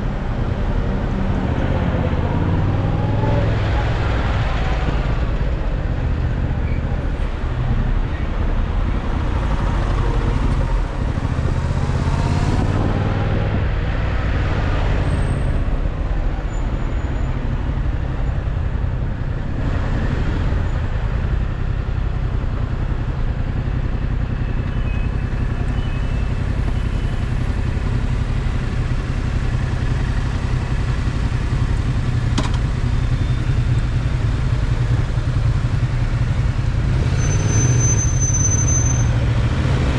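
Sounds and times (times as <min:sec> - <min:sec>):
motorcycle engine running: 0:20.5 - 0:37.0.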